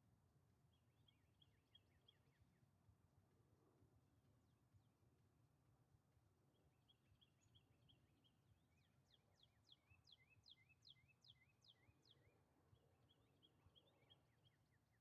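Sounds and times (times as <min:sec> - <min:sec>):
bird chirping: 0:06.8 - 0:15.0.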